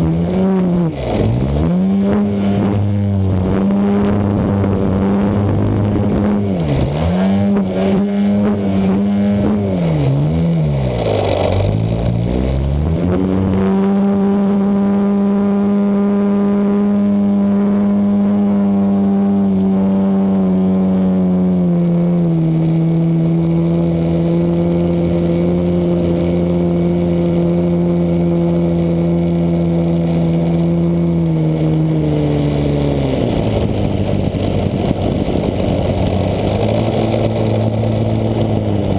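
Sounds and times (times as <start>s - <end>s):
model plane engine revving: 10.9s - 38.9s.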